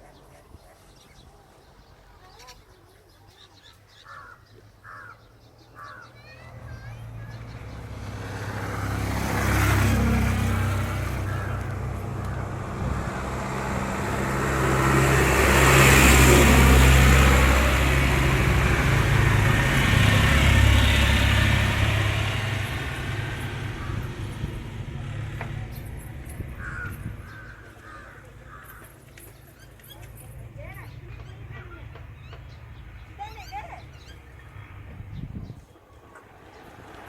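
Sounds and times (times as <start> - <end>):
vehicle engine running: 6.2 - 35.6.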